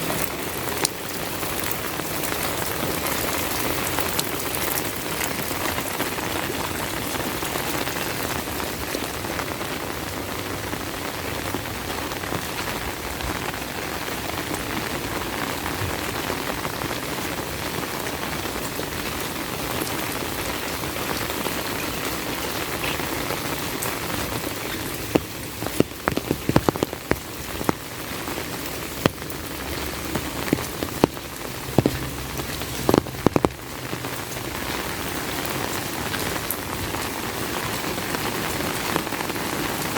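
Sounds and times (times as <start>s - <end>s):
heavy rain falling: 0.0s - 39.9s
sharp irregular taps: 25.1s - 27.8s, 30.4s - 32.2s, 32.8s - 33.6s.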